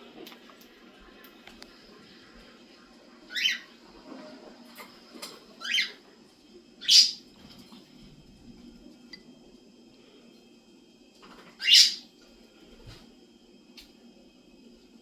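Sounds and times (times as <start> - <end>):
bird chirps: 6.8 - 7.2, 11.6 - 12.0.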